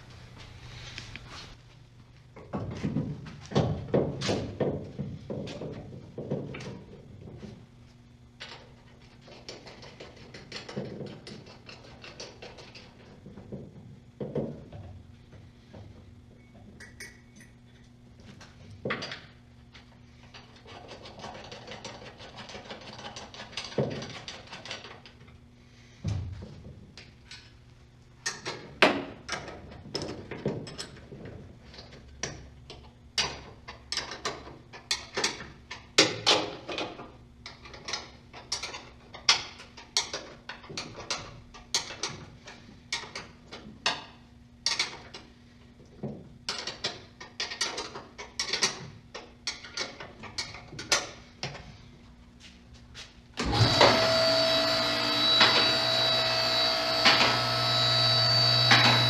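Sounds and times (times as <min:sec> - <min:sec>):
loud whirring machine: 0:53.4 - 0:59.0.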